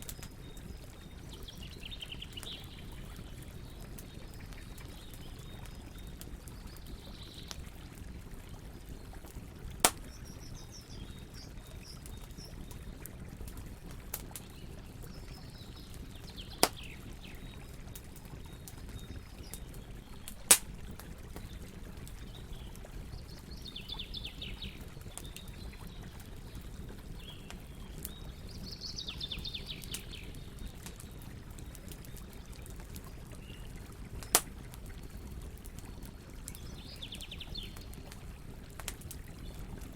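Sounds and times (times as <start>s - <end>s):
wood fire crackling: 0.0s - 28.6s, 29.2s - 39.9s
small birds chirping: 0.0s - 39.9s
sharp loud pops of fire: 9.8s - 10.2s, 20.5s - 20.7s.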